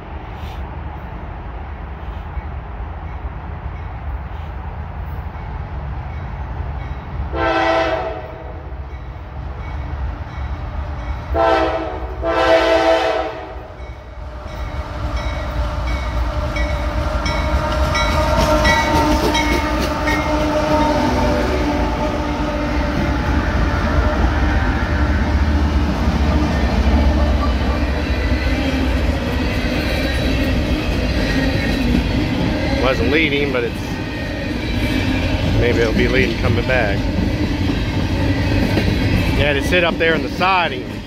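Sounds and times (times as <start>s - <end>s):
diesel locomotive engines: 0.0s - 41.0s
train horn blasts: 7.3s - 8.6s, 11.3s - 13.8s, 17.1s - 23.2s.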